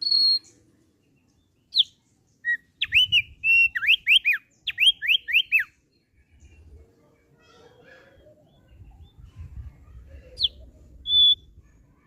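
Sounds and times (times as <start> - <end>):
bird singing whistled notes: 0.0 - 6.6, 10.4 - 11.6.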